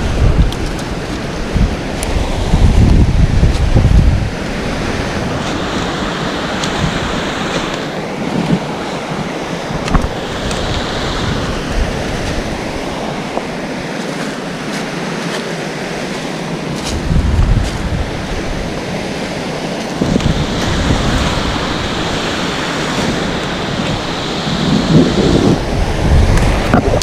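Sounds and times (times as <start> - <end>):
wind buffeting microphone: 0.0 - 15.1, 15.8 - 27.0
waterfall rushing: 0.0 - 27.0.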